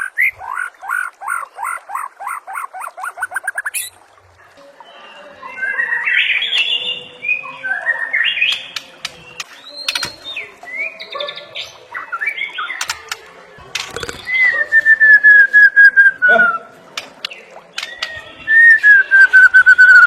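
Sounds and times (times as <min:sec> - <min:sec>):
bird singing chirps and warbles: 0:00.0 - 0:20.0
sharp clicks: 0:12.8 - 0:14.3.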